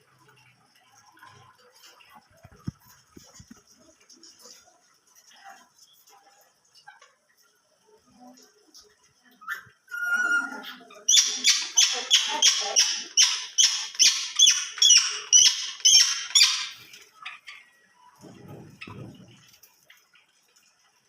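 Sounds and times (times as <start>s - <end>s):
cage bird harsh calls: 9.5s - 17.8s.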